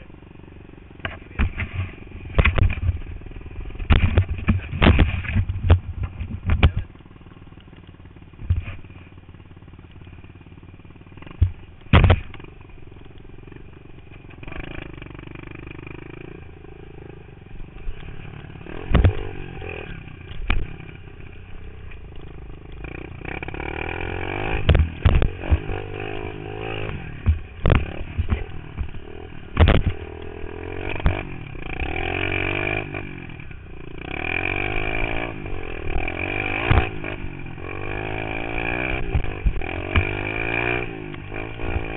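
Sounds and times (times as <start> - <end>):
motorbike engine revving: 0.0 - 41.9
sharp thumps: 1.0 - 6.9, 8.4 - 9.0, 11.2 - 12.5, 17.8 - 21.0, 24.4 - 33.0, 34.6 - 41.9.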